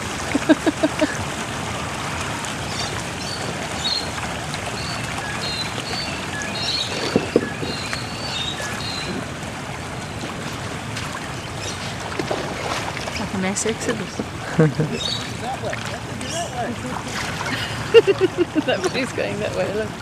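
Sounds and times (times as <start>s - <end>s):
rushing water: 0.0s - 20.0s
knocks: 7.0s - 7.8s.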